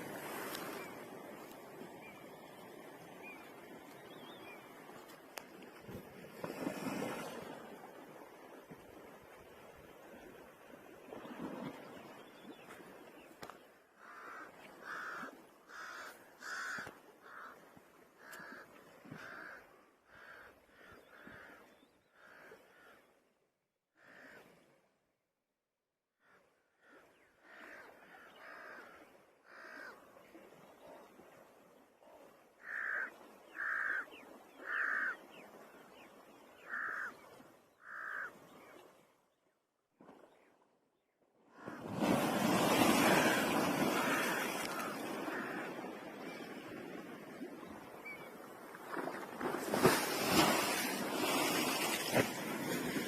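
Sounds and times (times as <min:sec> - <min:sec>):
bird calling: 0:36.6 - 0:38.5.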